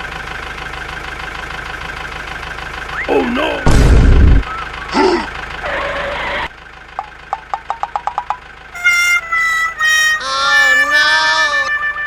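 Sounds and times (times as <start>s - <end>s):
wavering harmonica-like tones: 4.5s - 6.5s, 8.7s - 12.0s
quick plucked notes: 7.0s - 9.2s.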